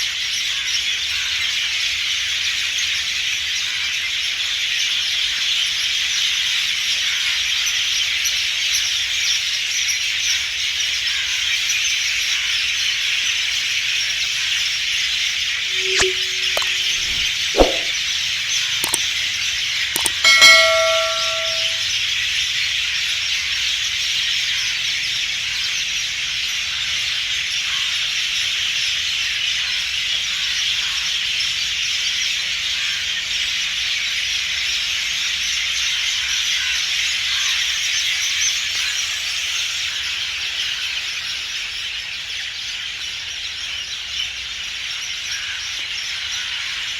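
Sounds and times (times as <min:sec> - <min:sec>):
sharp clicks: 0:15.8 - 0:18.0, 0:18.8 - 0:19.0, 0:20.0 - 0:21.8.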